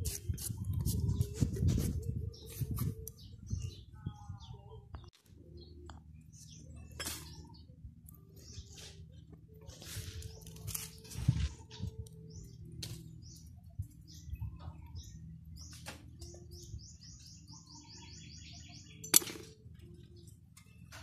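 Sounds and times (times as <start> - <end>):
bird chirping: 0.5 - 21.0
metal engine parts clinking: 19.0 - 19.6.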